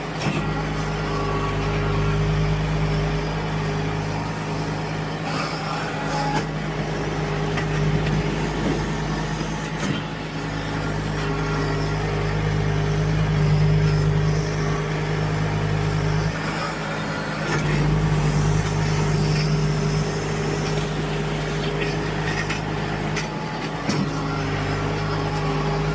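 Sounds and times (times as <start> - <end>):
tractor engine running: 0.0 - 25.9.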